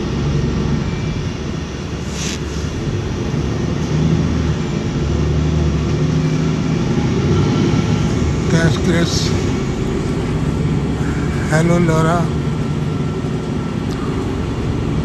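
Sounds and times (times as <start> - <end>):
motor vehicle rumbling: 0.0 - 15.0
brief hiss: 2.0 - 3.0.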